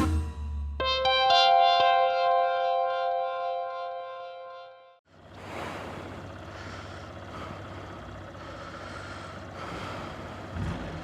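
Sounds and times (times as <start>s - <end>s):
motorcycle engine running: 5.1s - 11.0s.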